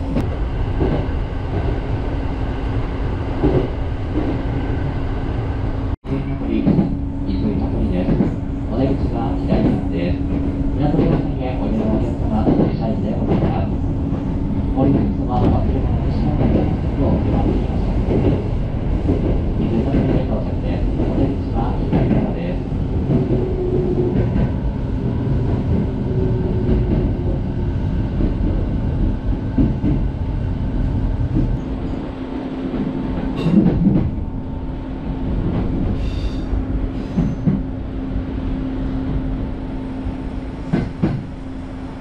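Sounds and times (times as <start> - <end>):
track knocks and clacks: 0.0 - 1.8, 3.4 - 4.6, 6.4 - 30.2, 31.2 - 32.0, 32.6 - 34.2, 35.4 - 36.0, 37.0 - 37.7, 40.6 - 41.4
train wheels rumbling on rail: 0.0 - 42.0.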